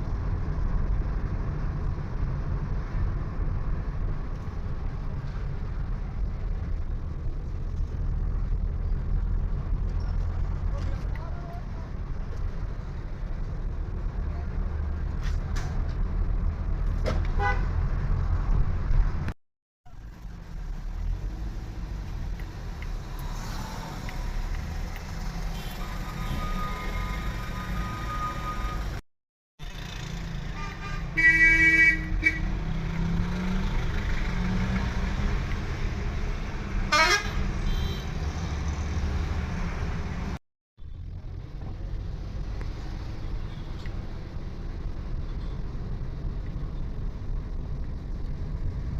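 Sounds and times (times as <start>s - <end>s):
vehicle driving in traffic: 0.0s - 29.0s, 29.6s - 48.9s
vehicle horn honking: 17.4s - 17.6s, 30.5s - 32.5s, 36.9s - 38.2s.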